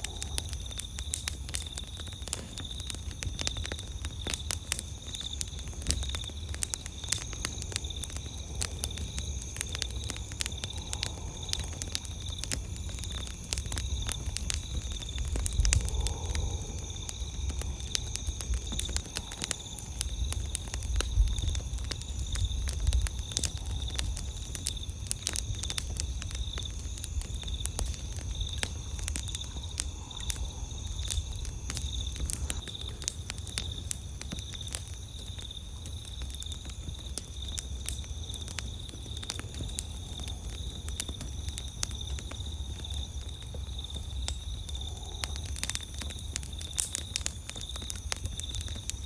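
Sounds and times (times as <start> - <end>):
campfire crackling and popping: 0.0 - 49.0
insects chirping: 0.0 - 49.0.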